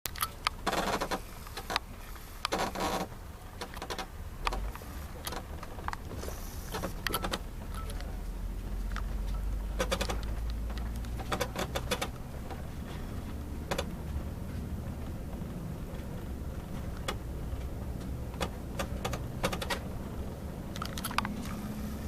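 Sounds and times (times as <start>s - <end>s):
diesel engine low rumble: 0.1s - 22.0s
short rattles and clicks: 8.9s - 12.6s, 15.9s - 19.9s, 20.7s - 22.0s.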